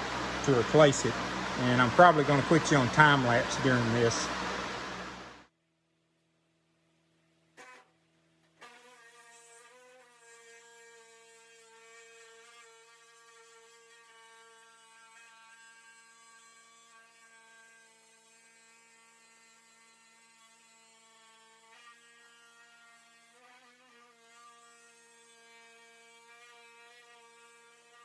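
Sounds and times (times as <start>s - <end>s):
faint electrical hum: 0.0s - 5.4s.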